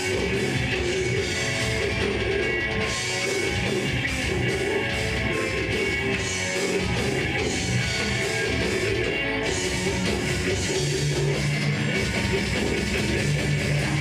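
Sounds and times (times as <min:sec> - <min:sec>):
distorted electric guitars: 0:00.0 - 0:14.0
drum kit: 0:00.0 - 0:14.0.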